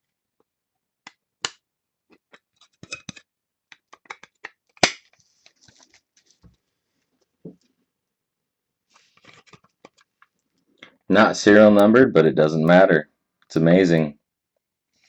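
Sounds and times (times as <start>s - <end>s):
cards clicking and tapping: 1.0s - 6.0s
card packaging snapping: 2.9s - 5.9s
packaging rustling: 4.3s - 6.5s.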